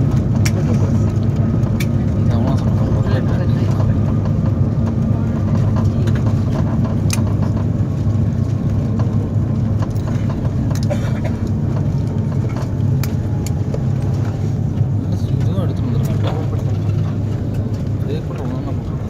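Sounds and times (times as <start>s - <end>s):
aircraft cabin rumble: 0.0s - 19.0s.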